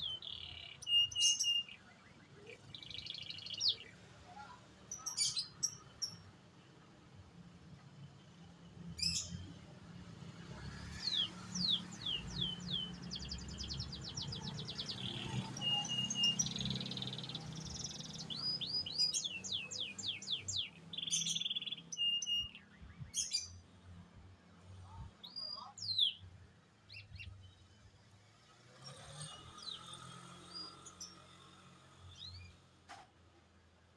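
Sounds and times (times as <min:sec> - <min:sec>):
canary singing: 0:00.0 - 0:04.0, 0:10.9 - 0:23.6.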